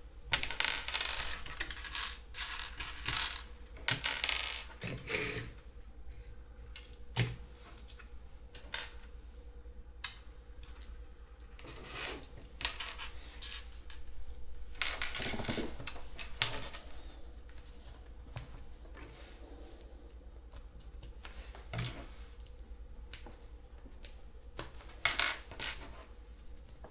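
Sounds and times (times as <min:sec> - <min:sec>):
plastic pieces clicking together: 0:00.6 - 0:04.6.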